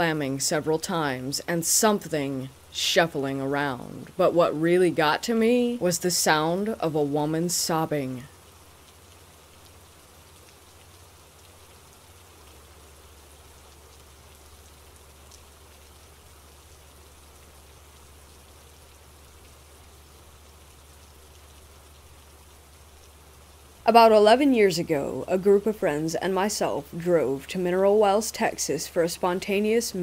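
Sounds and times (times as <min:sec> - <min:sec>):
soft steady rain: 0:00.0 - 0:30.0.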